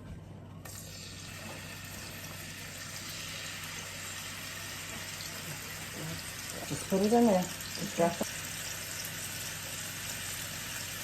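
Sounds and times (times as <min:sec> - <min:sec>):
chicken sizzling in a frying pan: 0:00.7 - 0:11.0.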